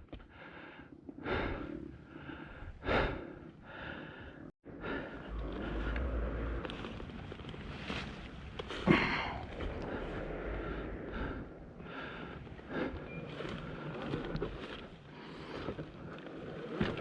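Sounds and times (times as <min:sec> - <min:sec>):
person breathing hard: 0:00.1 - 0:06.6, 0:08.7 - 0:14.1
wind rumble on microphone: 0:04.7 - 0:17.0.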